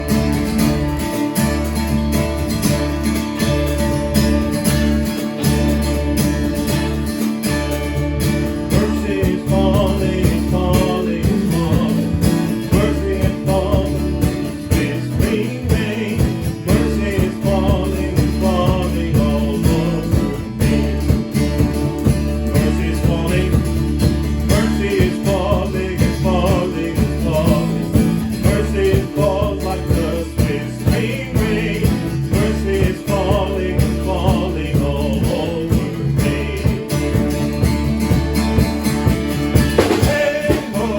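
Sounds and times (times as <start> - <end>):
acoustic guitar strumming: 0.0 - 40.9
band playing worship song: 0.0 - 40.9
person singing: 8.6 - 21.6, 22.4 - 23.9, 24.5 - 37.7, 39.8 - 40.9.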